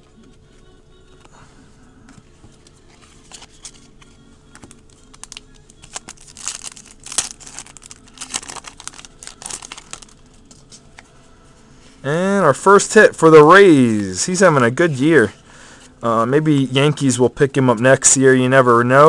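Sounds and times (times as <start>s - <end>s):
cards being handled: 2.1s - 11.1s
card pack wrapper crinkling and tearing: 4.6s - 10.5s.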